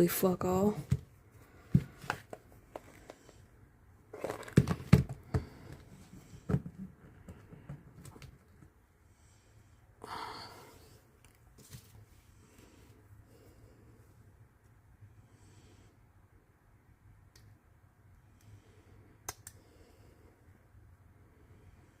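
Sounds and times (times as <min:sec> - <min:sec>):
breathy exhale: 0:09.2 - 0:11.0.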